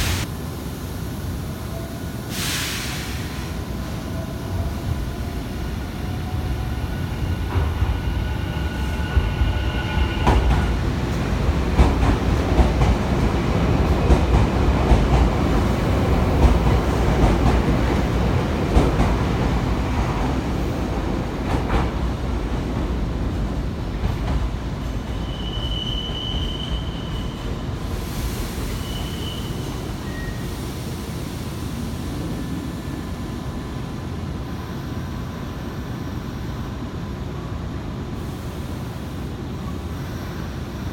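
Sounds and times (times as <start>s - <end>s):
high wheel squeal: 7.1s - 10.8s, 25.0s - 27.6s, 28.6s - 30.5s.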